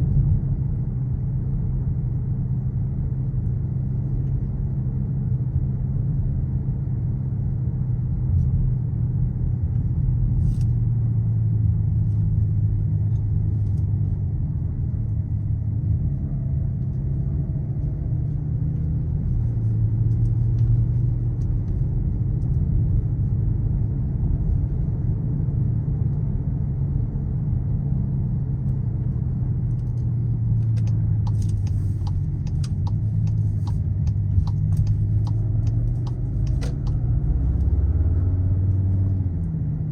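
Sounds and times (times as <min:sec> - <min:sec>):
car engine and exhaust droning: 0:00.0 - 0:39.9
light ticks: 0:29.7 - 0:37.7.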